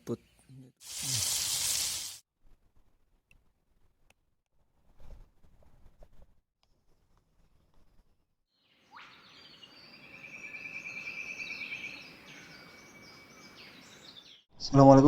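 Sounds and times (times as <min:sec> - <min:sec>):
background hiss: 0:00.8 - 0:02.2
birds chirping and calling: 0:08.8 - 0:14.4.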